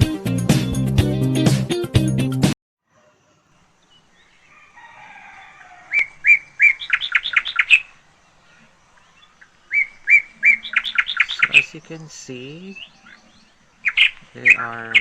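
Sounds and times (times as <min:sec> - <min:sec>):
bird singing high chirping notes: 0:09.2 - 0:15.0.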